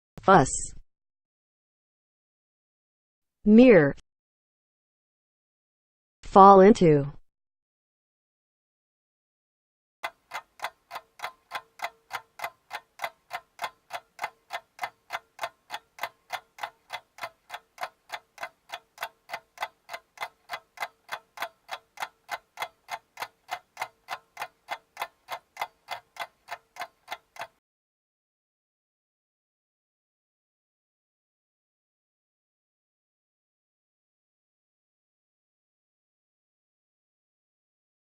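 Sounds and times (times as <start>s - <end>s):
clock ticking: 10.0s - 27.6s.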